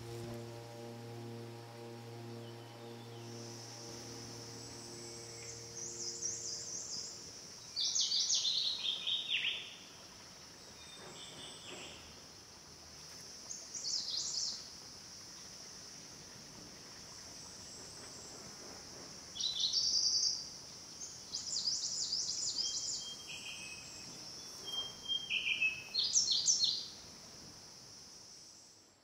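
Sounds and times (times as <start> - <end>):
high-pitched insect drone: 0.0 - 7.7
songbird singing: 0.0 - 10.0, 19.4 - 27.0.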